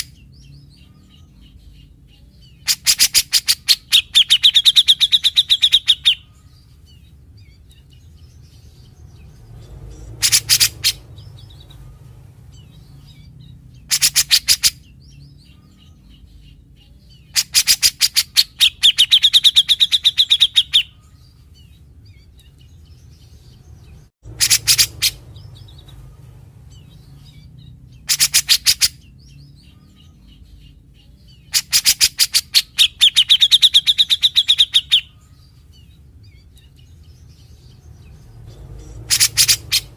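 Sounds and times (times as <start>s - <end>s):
bulbul singing rapid rattling notes: 24.3s - 27.4s, 36.8s - 39.9s.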